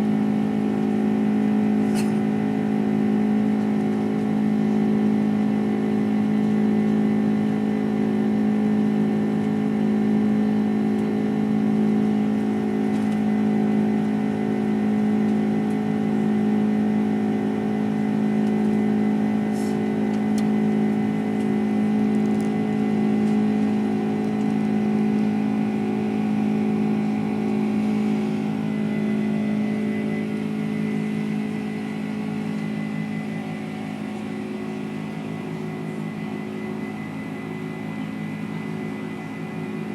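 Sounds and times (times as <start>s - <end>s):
jet engine drone in cabin: 0.0s - 39.9s.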